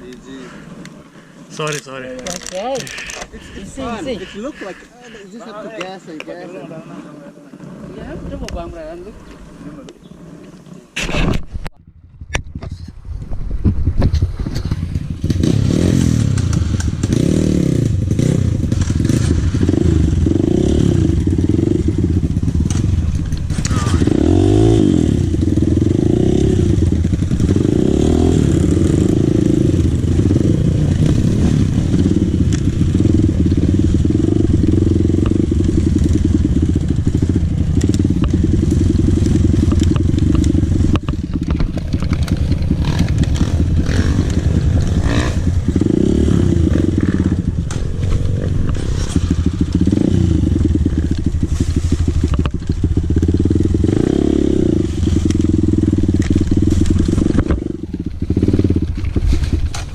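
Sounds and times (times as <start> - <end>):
dirt bike engine revving: 1.6 - 5.6, 14.6 - 59.9
knocks and rattles: 34.1 - 46.0.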